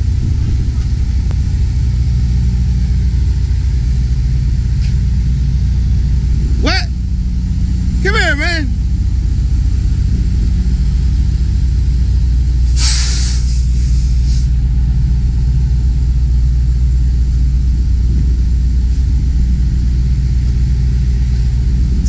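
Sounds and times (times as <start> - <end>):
diesel truck engine idling: 0.0 - 22.0
burst of air hiss: 12.7 - 14.5.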